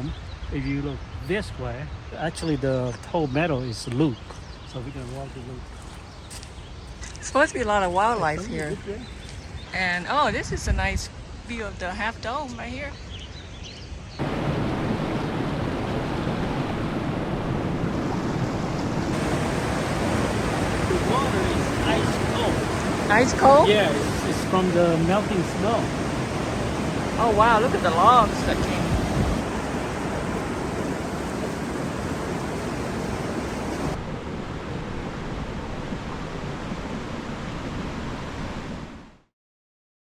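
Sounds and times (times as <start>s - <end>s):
water rushing: 14.2s - 38.7s.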